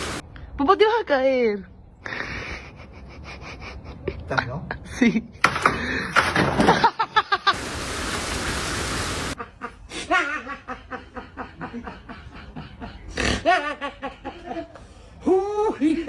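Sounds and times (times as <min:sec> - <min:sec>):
hissing noise burst: 0:00.0 - 0:00.2, 0:07.6 - 0:09.4
person laughing: 0:02.1 - 0:07.6, 0:09.4 - 0:16.0.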